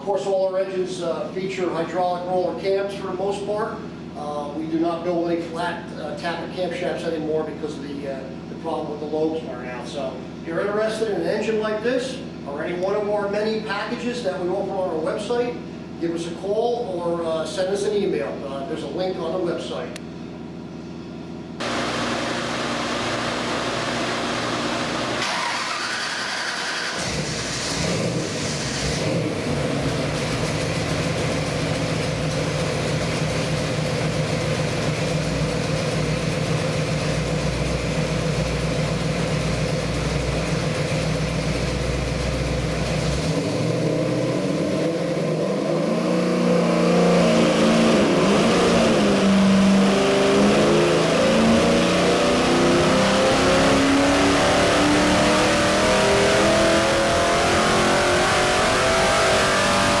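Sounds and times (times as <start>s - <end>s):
engine revving on dyno: 21.6s - 60.0s.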